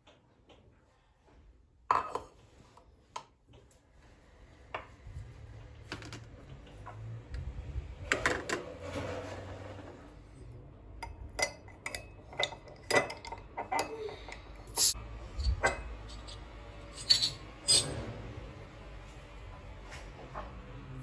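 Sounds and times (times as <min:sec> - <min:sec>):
dishes and glass clinking: 0:01.9 - 0:02.3, 0:11.0 - 0:16.4, 0:17.0 - 0:18.0.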